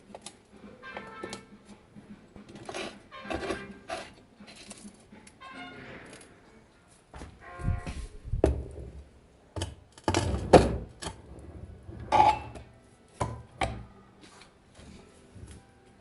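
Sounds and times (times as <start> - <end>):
knocks and clanks of metal stand: 9.6 - 13.9.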